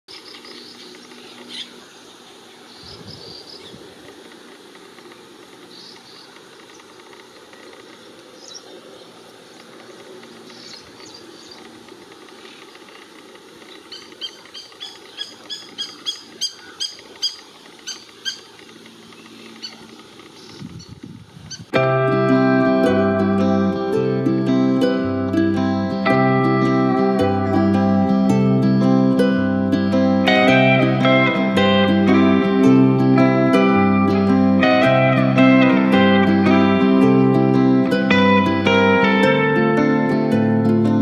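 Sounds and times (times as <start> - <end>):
sharp repeated bird calls: 0.1 - 3.8, 5.6 - 21.7
high bird chirps: 13.7 - 21.7.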